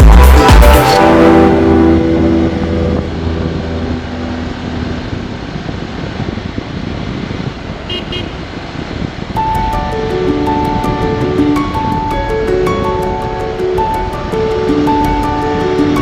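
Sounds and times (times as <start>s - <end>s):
electronic music: 0.0s - 5.3s
motorcycle engine rumble: 0.0s - 16.0s
wind buffeting microphone: 1.9s - 16.0s.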